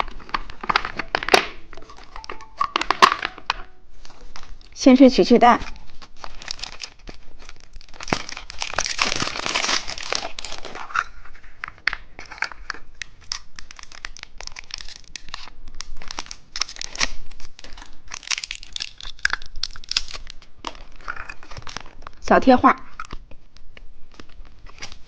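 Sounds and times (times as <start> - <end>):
plastic packaging crinkling: 0.0 - 22.2, 22.8 - 25.0.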